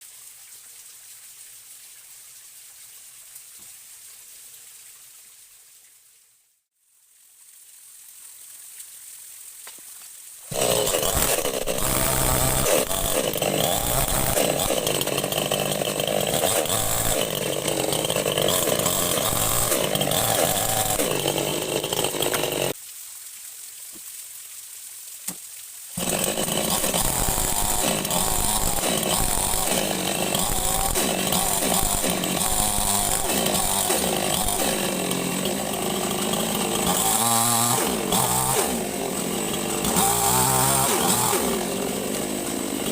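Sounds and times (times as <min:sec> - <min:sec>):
chainsaw cutting wood: 0:10.5 - 0:22.8, 0:26.0 - 0:42.9.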